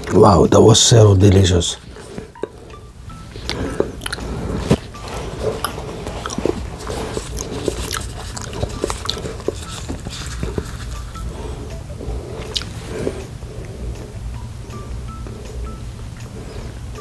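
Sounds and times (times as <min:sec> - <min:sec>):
chewing with wet smacks: 0:01.8 - 0:14.0.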